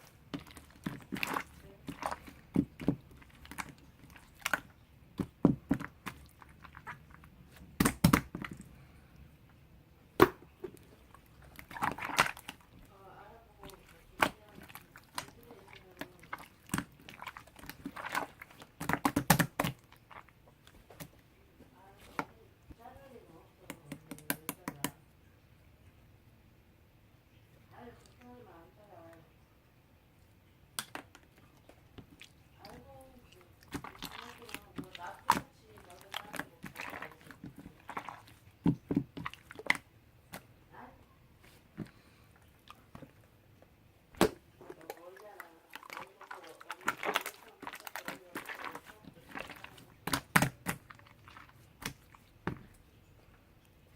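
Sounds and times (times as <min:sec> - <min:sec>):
slime squished by hand: 0:00.0 - 0:08.8, 0:10.2 - 0:13.0, 0:13.6 - 0:21.2, 0:30.8 - 0:40.6, 0:44.1 - 0:52.9.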